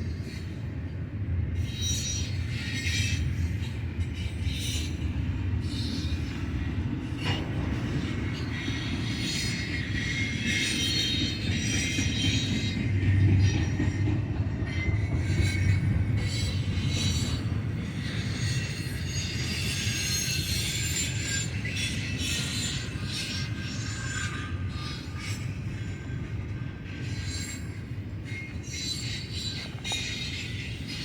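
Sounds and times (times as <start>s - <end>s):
freight train wheels rumbling on rail: 0.0s - 31.0s.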